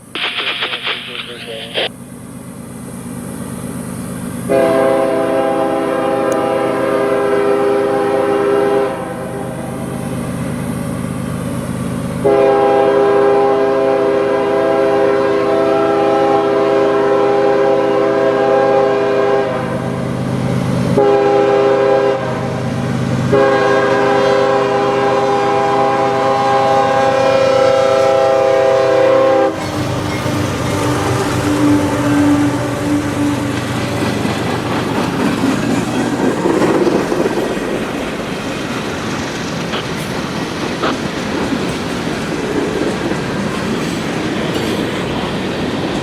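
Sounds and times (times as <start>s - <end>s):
passing train rumble: 0.0s - 46.0s
locomotive air horn: 4.4s - 9.5s, 12.2s - 19.9s, 21.0s - 22.6s, 23.3s - 34.1s.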